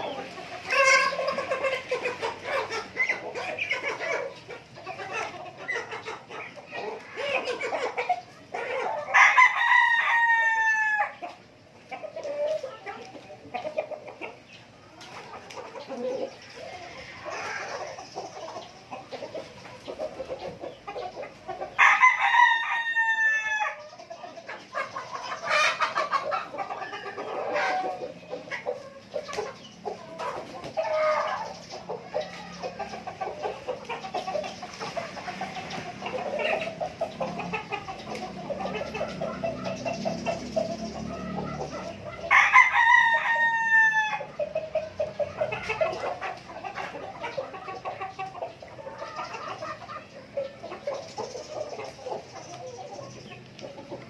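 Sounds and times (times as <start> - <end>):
chickens clucking: 0.0 - 54.0
rooster crowing: 9.1 - 11.2, 21.8 - 23.8, 42.2 - 44.3.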